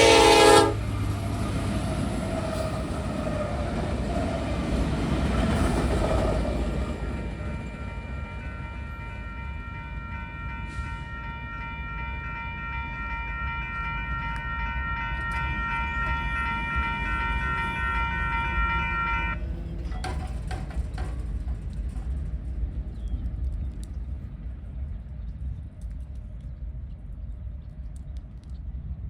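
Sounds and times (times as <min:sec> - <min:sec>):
locomotive rumble: 0:00.0 - 0:27.5
railroad crossing bell ringing: 0:05.4 - 0:19.4.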